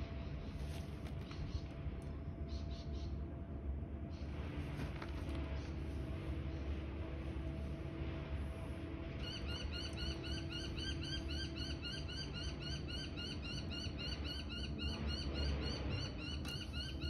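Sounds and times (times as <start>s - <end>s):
steady low hum: 0.0s - 17.0s
bird chirping: 9.2s - 17.0s.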